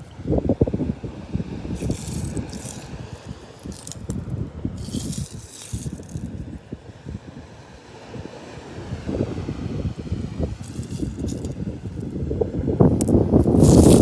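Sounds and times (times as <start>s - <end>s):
seashells rattling and clinking: 1.7s - 6.4s, 10.6s - 12.0s, 13.0s - 14.0s
wind buffeting microphone: 8.8s - 14.0s.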